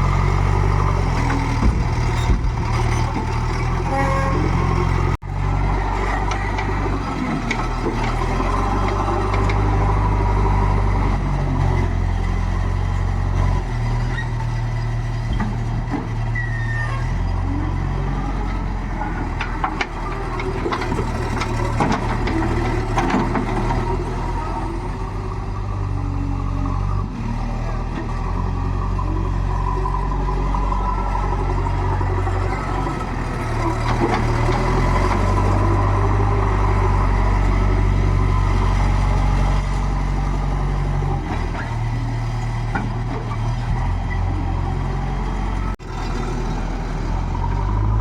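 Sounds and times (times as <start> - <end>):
backhoe diesel engine revving: 0.0 - 48.0
knocks: 1.3 - 4.1.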